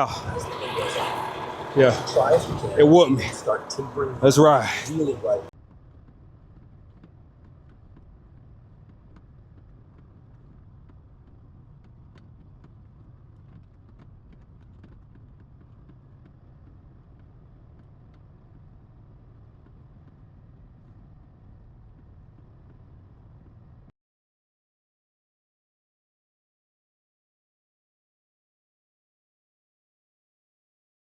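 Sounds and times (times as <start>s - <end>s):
truck engine rumbling: 0.0s - 5.5s.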